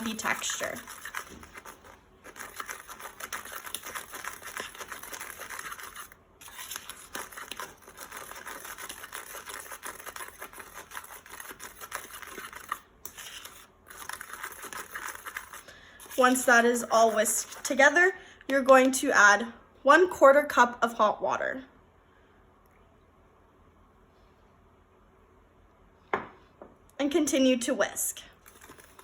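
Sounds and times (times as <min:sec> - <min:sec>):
fork whisking powder in a bowl: 0:00.0 - 0:17.9, 0:28.3 - 0:29.0.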